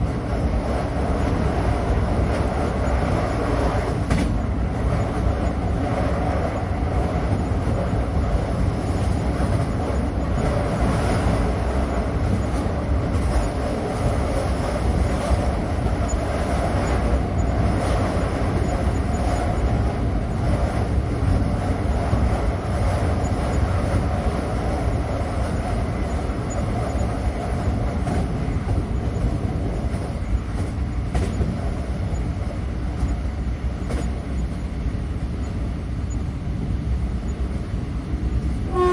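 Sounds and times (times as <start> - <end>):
train wheels rumbling: 0.0 - 38.9.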